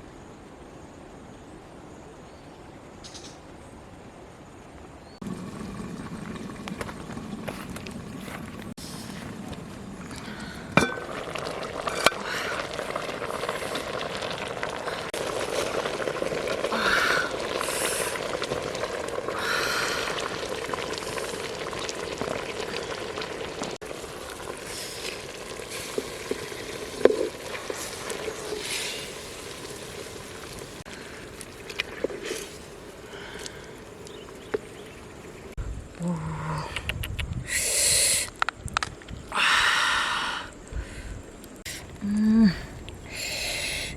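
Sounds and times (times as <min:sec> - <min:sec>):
food sizzling in a pan: 0:10.8 - 0:33.0.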